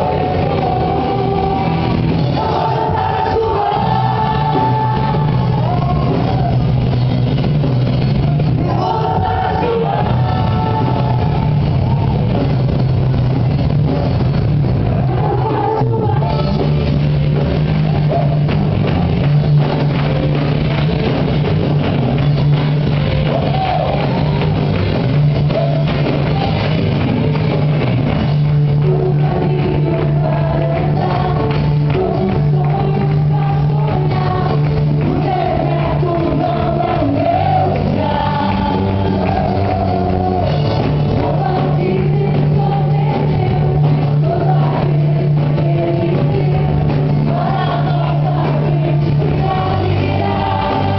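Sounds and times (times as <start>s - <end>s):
group of voices singing: 0.0s - 6.9s, 8.3s - 12.5s, 14.9s - 19.0s, 28.5s - 50.9s
worship song band: 0.0s - 50.9s.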